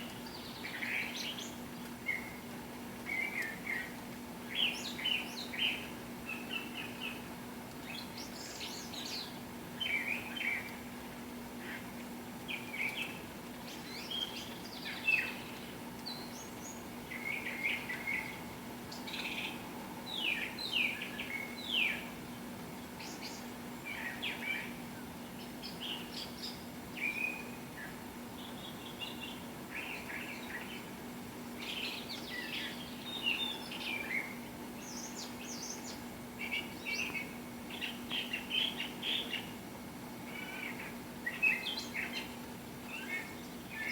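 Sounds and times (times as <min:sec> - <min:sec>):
songbirds chirping and singing: 0:31.6 - 0:39.6.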